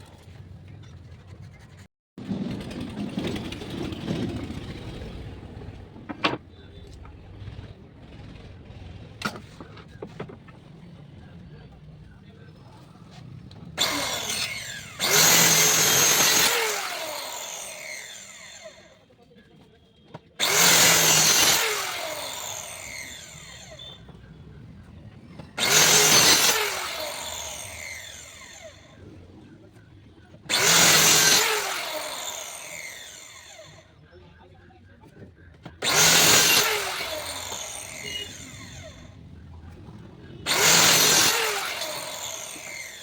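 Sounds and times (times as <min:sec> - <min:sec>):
power tool cutting wood: 0:13.5 - 0:19.0, 0:20.4 - 0:24.3, 0:25.2 - 0:29.4, 0:30.4 - 0:33.9, 0:35.7 - 0:39.2, 0:40.4 - 0:43.0.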